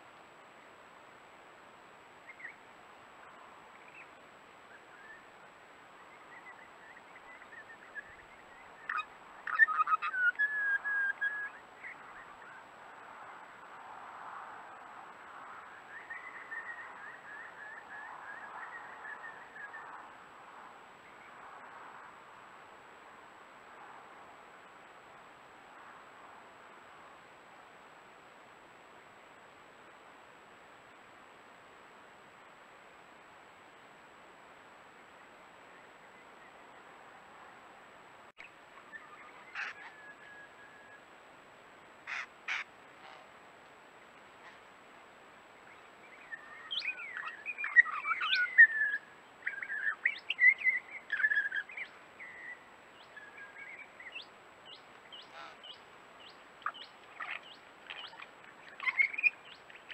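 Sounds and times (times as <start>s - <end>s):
steady background hiss: 0.0s - 59.9s
harsh rasping bird calls: 8.8s - 11.6s, 38.9s - 40.1s, 42.0s - 43.3s, 55.1s - 59.9s
small bird chirping: 46.1s - 59.9s.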